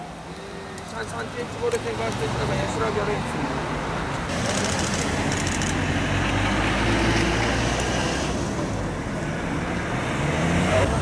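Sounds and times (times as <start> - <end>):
road traffic noise: 0.0 - 11.0
vehicle passing: 4.2 - 11.0.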